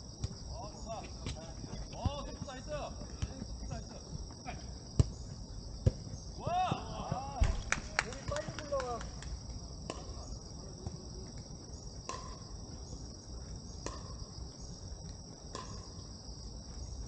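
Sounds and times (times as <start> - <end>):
insects chirping: 0.0 - 17.0
sharp knocks: 7.4 - 8.4.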